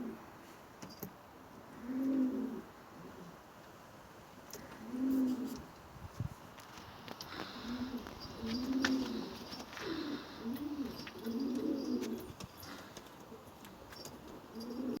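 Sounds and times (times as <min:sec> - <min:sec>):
pigeons cooing: 0:00.0 - 0:00.2, 0:01.7 - 0:03.4, 0:04.6 - 0:05.7, 0:07.2 - 0:15.0.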